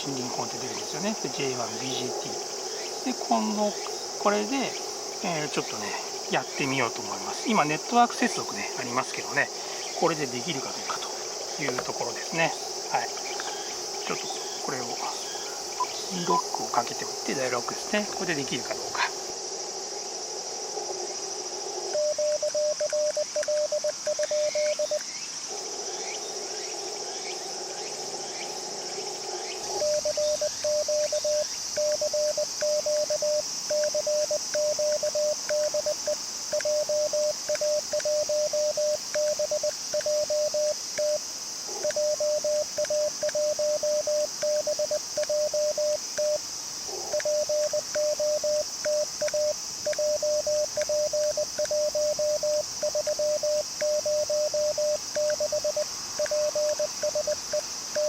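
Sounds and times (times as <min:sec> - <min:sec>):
radio band hiss: 0:00.0 - 0:19.3
insect chorus: 0:00.0 - 0:58.0
morse code tone: 0:22.0 - 0:25.0, 0:29.8 - 0:41.2, 0:41.9 - 0:46.4, 0:47.2 - 0:58.0.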